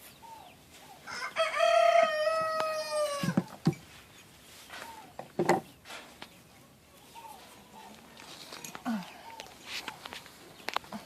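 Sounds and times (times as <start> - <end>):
rooster crowing: 1.1 - 3.5.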